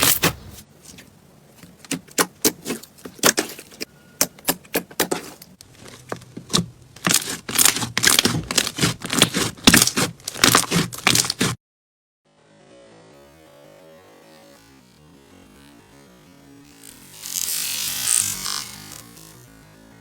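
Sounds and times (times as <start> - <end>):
slime being squeezed by hand: 7.0 - 11.6.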